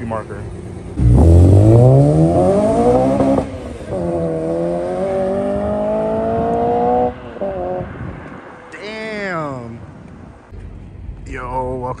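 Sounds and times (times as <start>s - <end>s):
car engine accelerating hard: 0.5s - 8.7s.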